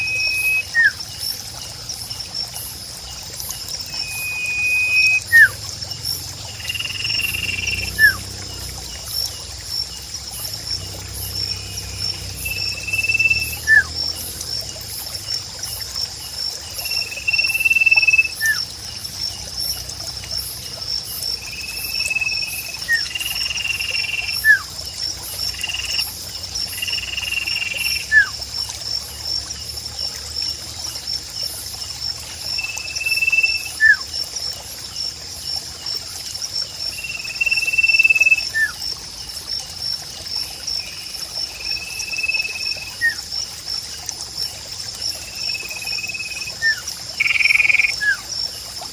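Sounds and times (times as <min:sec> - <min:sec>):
bird whistling: 0:00.0 - 0:01.0, 0:04.0 - 0:05.6.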